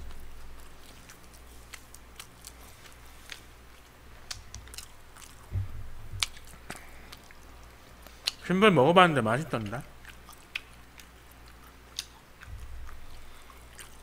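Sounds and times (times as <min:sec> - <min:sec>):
person chewing food: 0:00.0 - 0:08.4, 0:09.9 - 0:14.0
low thud: 0:05.5 - 0:06.3.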